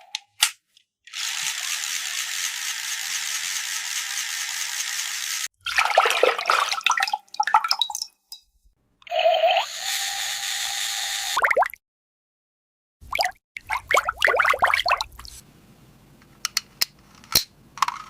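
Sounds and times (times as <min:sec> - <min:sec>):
water splashing: 0:05.6 - 0:08.2, 0:13.1 - 0:15.4
water pouring: 0:05.6 - 0:08.4, 0:13.1 - 0:15.4
plastic toy pieces clicking: 0:16.4 - 0:18.0.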